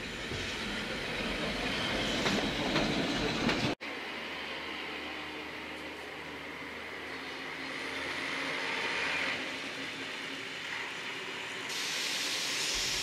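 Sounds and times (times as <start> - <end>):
train rumbling: 0.0 - 13.0
sharp hiss: 11.7 - 13.0.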